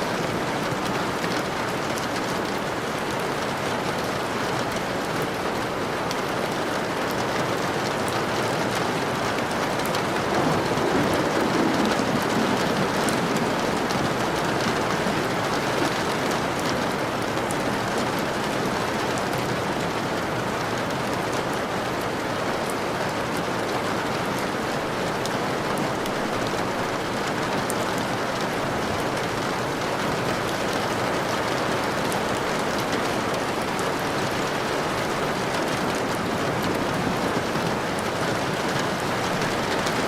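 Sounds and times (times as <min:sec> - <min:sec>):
steady rain falling: 0:00.0 - 0:40.0
distant thunder rumble: 0:09.0 - 0:18.8, 0:31.8 - 0:40.0.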